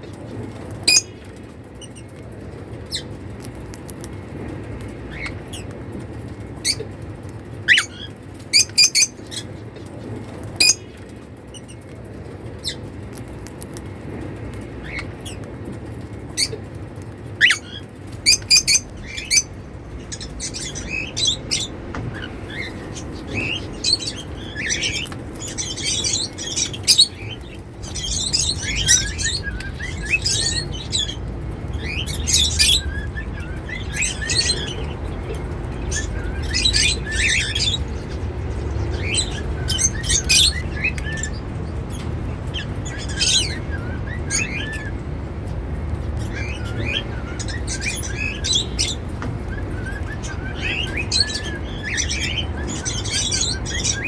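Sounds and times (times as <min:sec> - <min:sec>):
cockatiels chirping: 0:00.6 - 0:02.1, 0:07.7 - 0:09.6, 0:10.5 - 0:11.8, 0:16.4 - 0:16.6, 0:17.4 - 0:45.0, 0:46.1 - 0:54.0.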